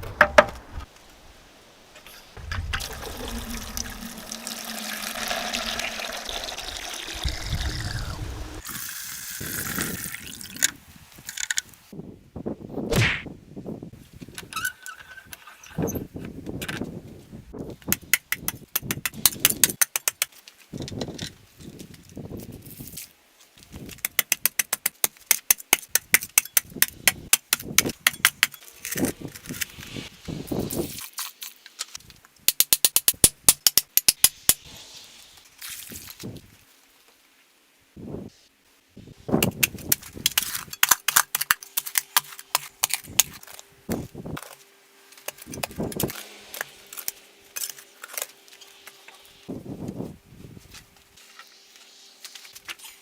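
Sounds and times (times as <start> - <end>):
dull knocks and handling noise: 0.0 - 1.1.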